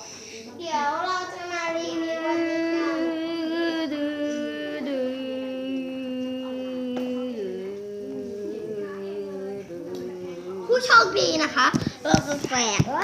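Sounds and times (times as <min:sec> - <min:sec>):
person singing long notes: 0:02.0 - 0:10.9.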